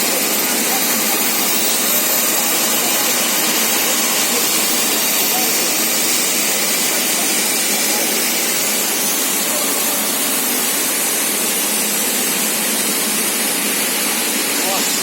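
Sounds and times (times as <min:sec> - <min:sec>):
production line machinery hissing: 0:00.0 - 0:15.0.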